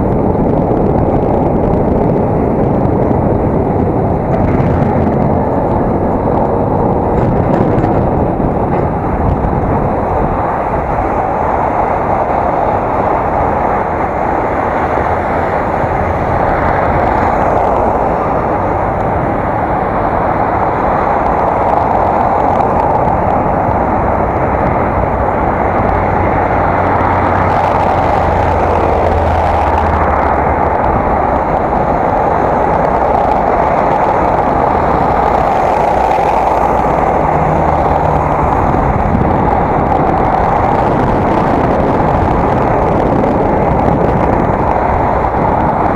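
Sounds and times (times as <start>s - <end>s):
bicycle rolling: 0.0s - 45.9s
low traffic rumble: 0.0s - 45.9s
wind on microphone: 0.0s - 45.9s.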